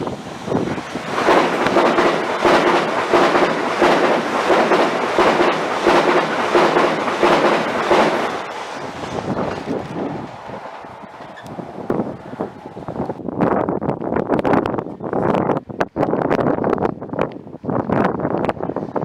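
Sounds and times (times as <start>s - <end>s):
train wheels clattering over rails: 0.0s - 13.2s.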